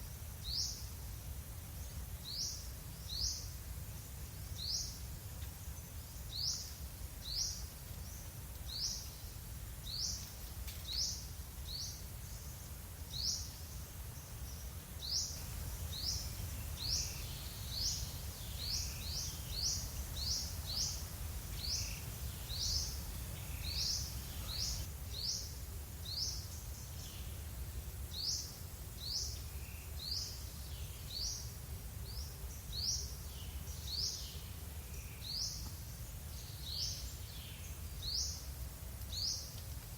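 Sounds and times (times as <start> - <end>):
bird chirping: 21.6 - 24.9.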